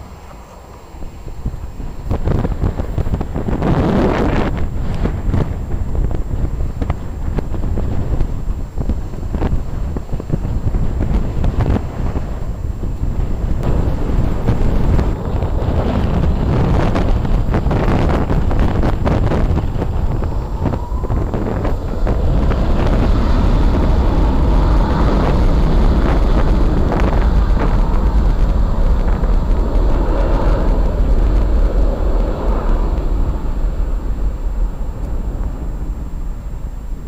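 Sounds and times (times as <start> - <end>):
airliner engines passing: 0.0 - 37.0
wind buffeting microphone: 0.0 - 37.0.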